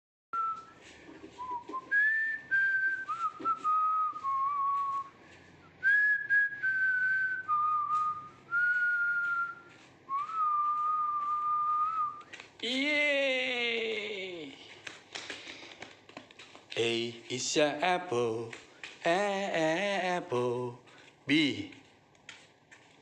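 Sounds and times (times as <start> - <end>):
person whistling a tune: 1.4 - 12.3.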